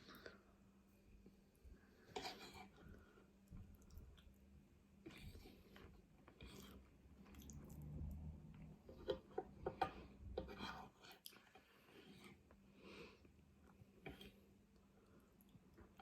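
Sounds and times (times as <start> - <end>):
person chewing: 5.1 - 8.2.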